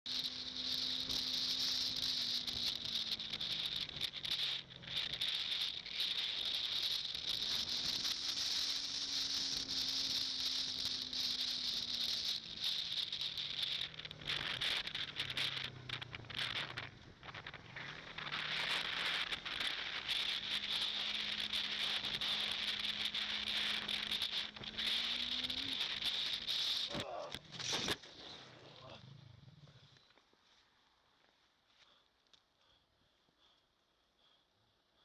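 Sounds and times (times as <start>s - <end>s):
motorcycle engine: 0.0s - 30.2s
wind and road hiss: 0.1s - 28.1s.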